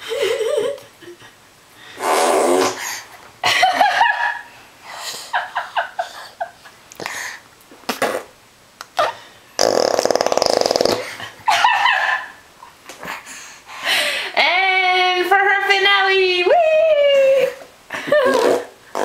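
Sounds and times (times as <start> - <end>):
baby blowing raspberries: 1.9 - 3.1, 7.0 - 8.3, 9.0 - 11.2.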